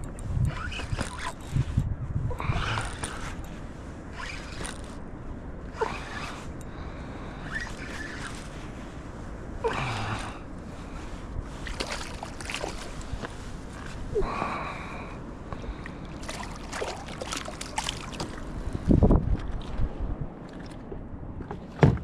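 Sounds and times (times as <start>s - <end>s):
fishing reel buzzing: 0.4s - 1.6s, 2.4s - 5.0s.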